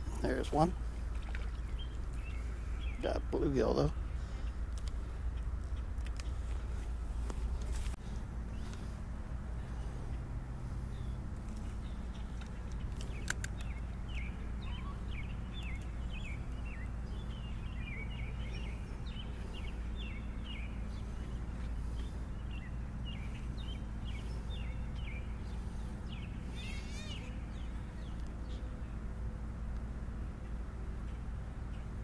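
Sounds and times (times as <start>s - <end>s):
small birds chirping: 0.0s - 32.0s
steady low rumble: 0.0s - 32.0s
sharp clicks: 12.3s - 13.8s.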